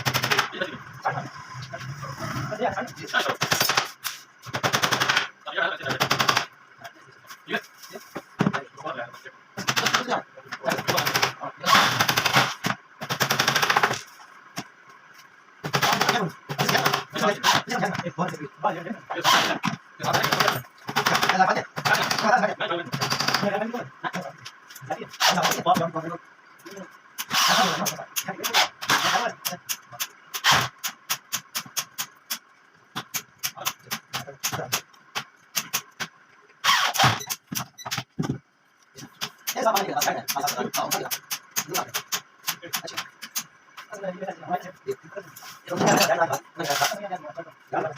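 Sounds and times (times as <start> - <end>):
power tool rattling: 10.7 - 14.0.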